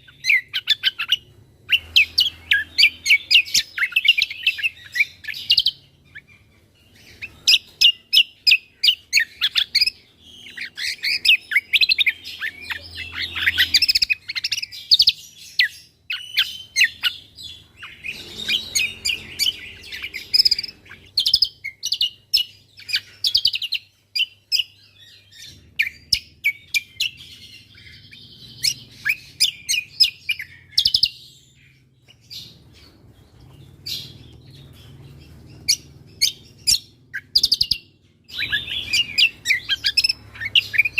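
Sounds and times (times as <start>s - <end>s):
songbird chirping and whistling: 0.0s - 40.9s.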